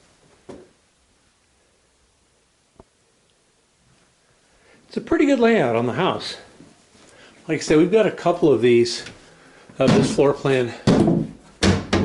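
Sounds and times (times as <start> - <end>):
faint background noise: 0.0 - 12.0
thump: 10.9 - 12.0.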